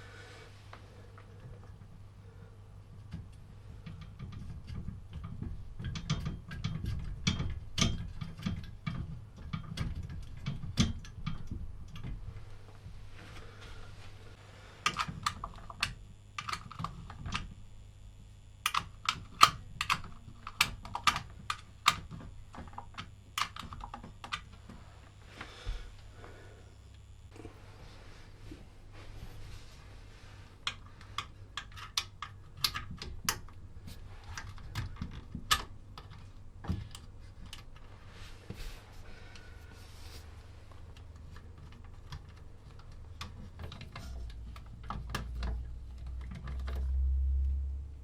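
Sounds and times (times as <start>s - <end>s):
steady low hum: 0.0s - 48.0s
clicks of metal parts handled: 18.6s - 24.4s.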